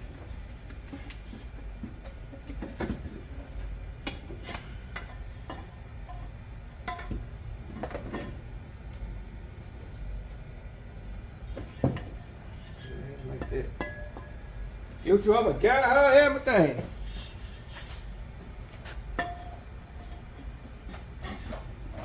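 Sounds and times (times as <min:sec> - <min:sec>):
clinks of hard parts handled: 0:12.8 - 0:14.4, 0:19.1 - 0:20.4.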